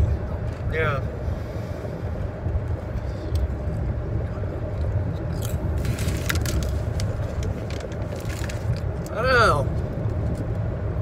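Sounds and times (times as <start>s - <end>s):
car road rumble: 0.0s - 11.0s
potato chips crunching: 5.2s - 9.1s.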